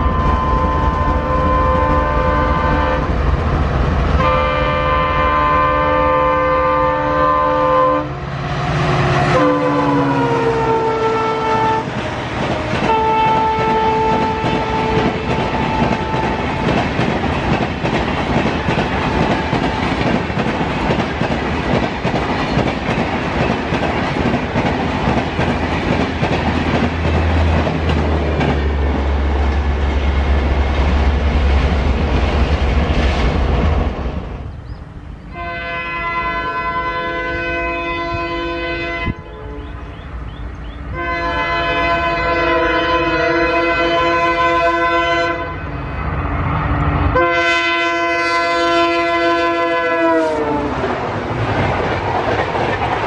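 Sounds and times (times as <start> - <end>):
locomotive air horn: 0.0 - 3.1, 4.2 - 16.8, 35.3 - 40.0, 40.9 - 45.8, 47.1 - 50.9
train wheel clatter: 11.4 - 34.8, 50.8 - 53.0.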